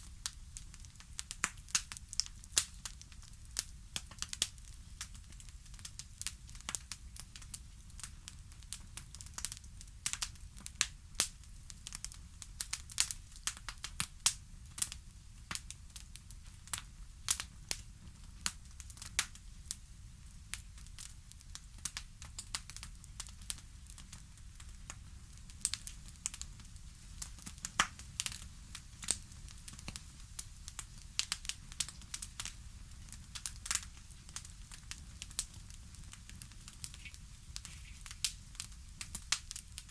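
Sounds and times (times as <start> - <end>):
fire crackling and popping: 0.0 - 39.9.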